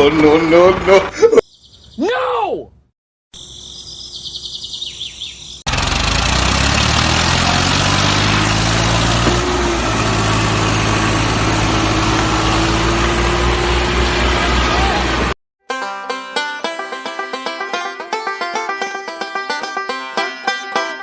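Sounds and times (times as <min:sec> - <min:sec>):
engine running loudly: 0:05.7 - 0:15.4.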